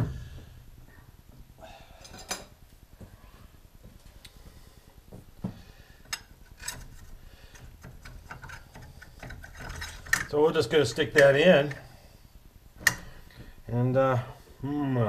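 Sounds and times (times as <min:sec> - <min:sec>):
metallic clicks and clinks of tools: 0:07.5 - 0:10.4.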